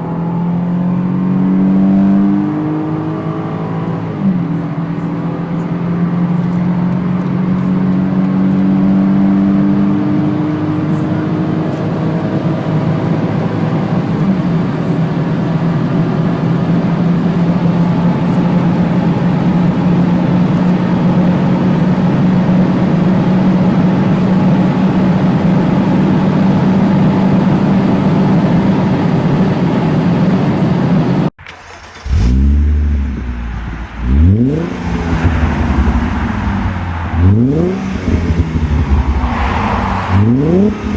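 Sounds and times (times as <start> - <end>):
engine revving in blips: 31.4 - 40.9
engine running at high revs: 31.5 - 40.9.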